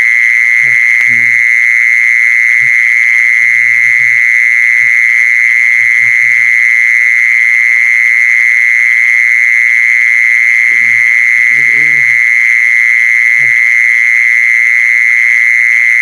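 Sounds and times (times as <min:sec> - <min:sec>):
faint low murmurs: 0:10.7 - 0:12.2.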